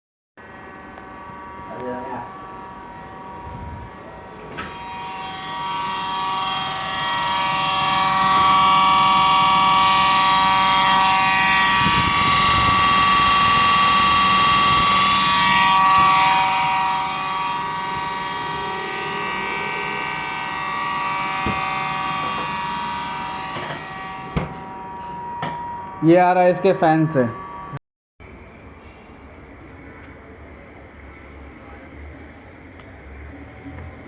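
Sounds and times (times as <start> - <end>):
refrigerator fan whirring: 0.4 - 25.0.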